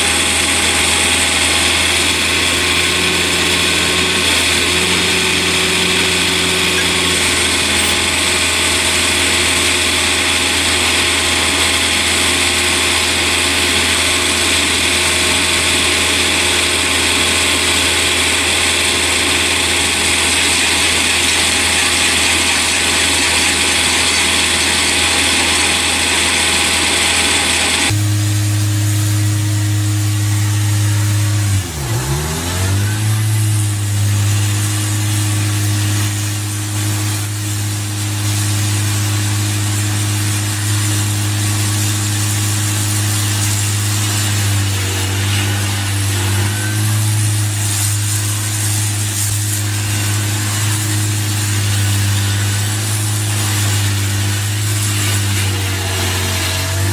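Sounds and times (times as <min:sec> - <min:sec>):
deep engine hum: 0:00.0 - 0:09.4
heavy machinery whining: 0:00.0 - 0:56.9.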